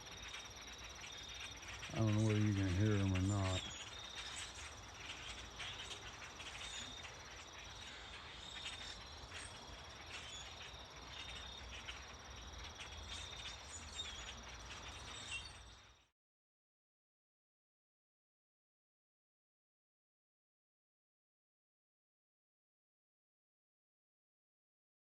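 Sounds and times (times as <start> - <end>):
crickets trilling: 0.0 - 16.1.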